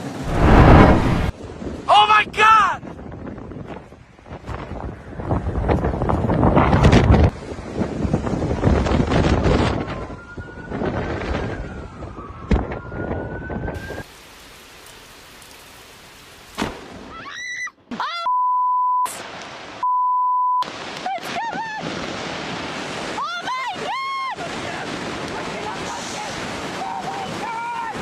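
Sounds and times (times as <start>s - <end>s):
wind: 0.0s - 28.0s
rain: 13.6s - 17.5s, 19.1s - 19.8s, 20.6s - 28.0s.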